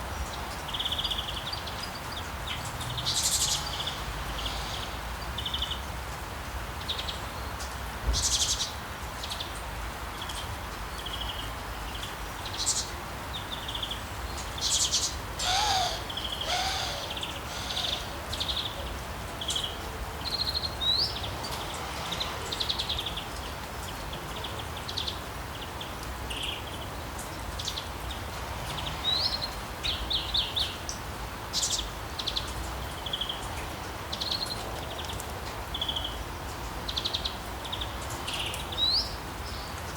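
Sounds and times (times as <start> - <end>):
songbirds chirping and trilling: 0.0 - 39.9
rain hissing: 2.1 - 24.6
low swooping bird call: 15.4 - 18.6.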